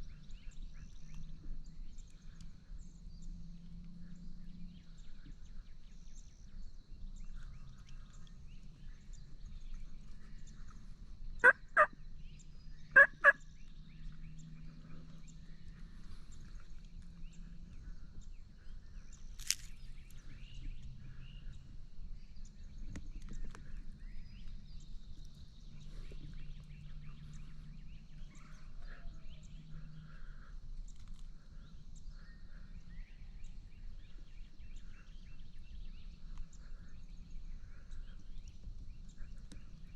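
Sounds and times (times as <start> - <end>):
quiet woodland background: 0.0 - 39.9
turkey calls: 11.4 - 12.0, 13.0 - 13.4.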